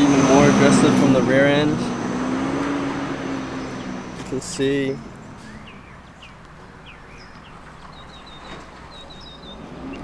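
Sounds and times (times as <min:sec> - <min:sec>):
steady low hum: 0:00.0 - 0:06.0
small birds chirping: 0:00.0 - 0:10.0.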